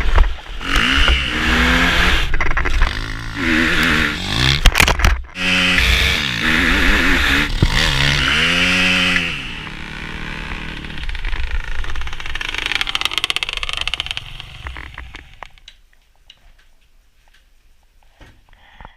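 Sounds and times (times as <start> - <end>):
dirt bike engine revving: 0.0 - 15.6
fast mechanical rattle: 0.6 - 15.6.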